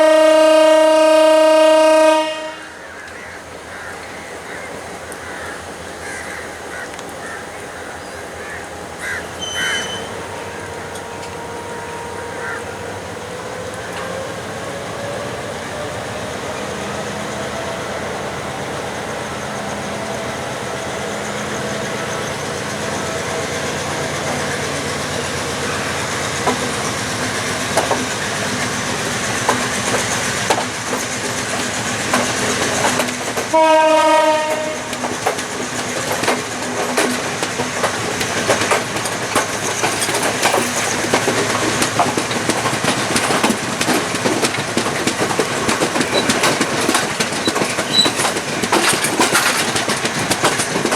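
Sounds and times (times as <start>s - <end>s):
train horn blast: 0.0s - 3.0s, 9.3s - 13.2s, 33.5s - 35.3s
diesel train engine hum: 0.0s - 50.9s
train wheels clicking on rails: 0.0s - 50.9s.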